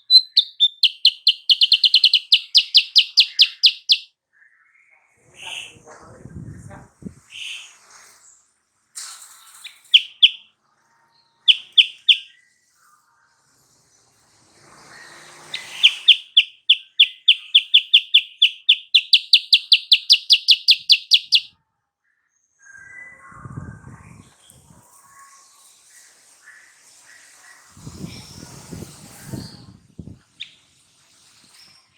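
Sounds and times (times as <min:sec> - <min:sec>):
bird song: 0:00.0 - 0:05.8, 0:09.5 - 0:10.5, 0:11.2 - 0:12.7, 0:15.5 - 0:23.5.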